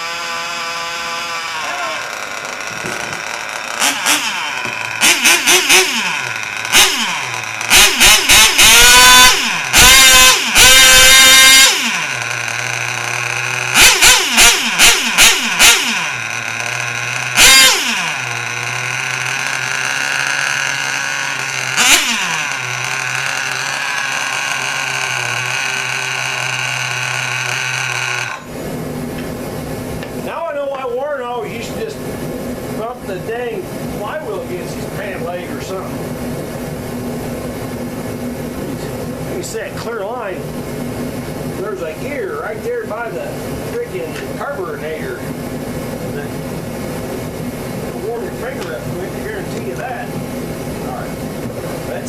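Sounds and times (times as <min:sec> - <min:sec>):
small engine revving: 0:00.0 - 0:28.8.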